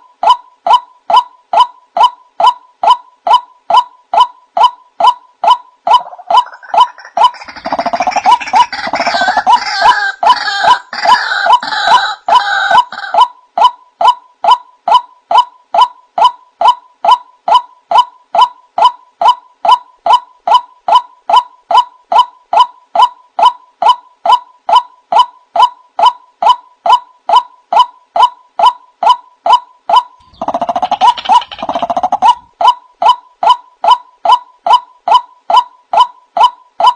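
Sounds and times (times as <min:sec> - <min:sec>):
repeated bird call: 0:00.0 - 0:36.9
croaking bird calls: 0:05.1 - 0:13.3, 0:29.9 - 0:34.4.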